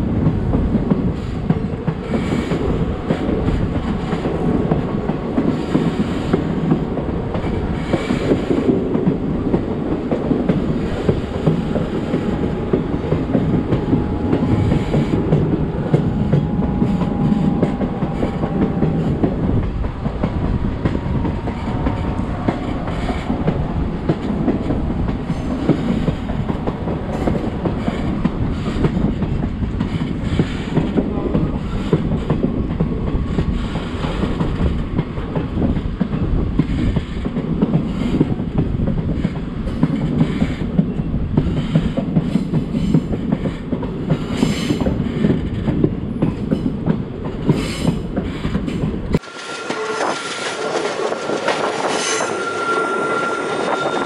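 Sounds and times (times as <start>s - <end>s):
train rumbling along track: 0.0s - 54.0s
wheels clicking over rail joints: 0.2s - 52.8s
faint high squeal: 49.2s - 54.0s.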